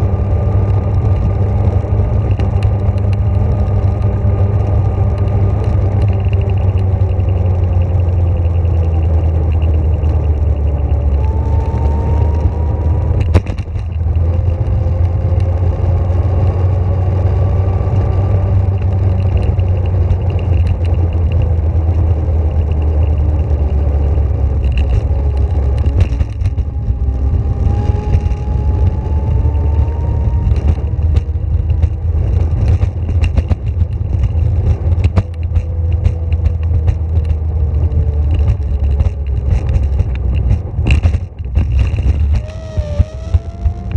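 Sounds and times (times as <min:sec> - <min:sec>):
vehicle rumble in motion: 0:00.0 - 0:43.9
motor whine rising: 0:42.3 - 0:43.9.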